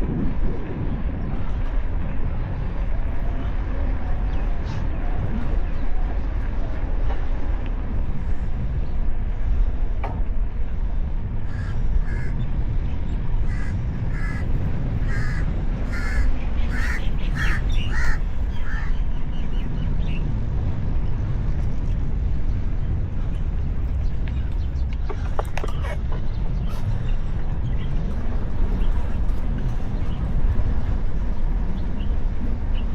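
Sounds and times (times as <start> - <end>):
wind and riding noise: 0.0 - 32.9
bird short repeated calls: 15.1 - 19.0.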